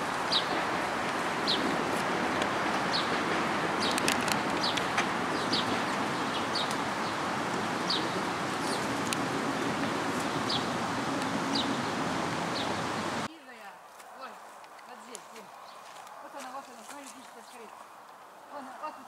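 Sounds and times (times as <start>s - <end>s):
steady background hiss: 0.0s - 15.6s
songbird chirping: 0.0s - 19.0s.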